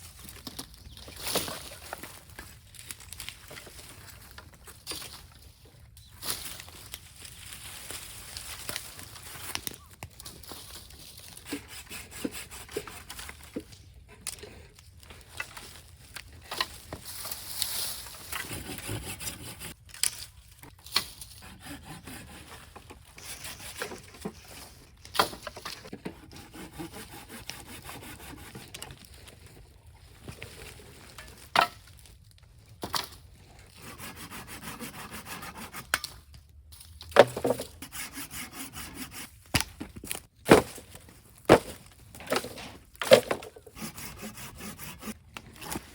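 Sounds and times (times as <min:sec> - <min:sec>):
wood scraping and splintering: 0:20.6 - 0:32.1, 0:37.0 - 0:45.9.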